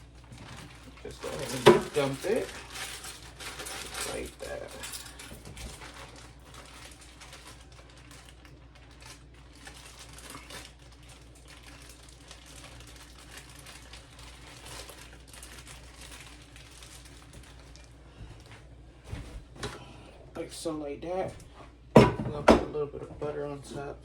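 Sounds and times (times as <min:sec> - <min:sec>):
crinkling and rustling: 0:00.0 - 0:20.0
steady low hum: 0:00.0 - 0:24.0.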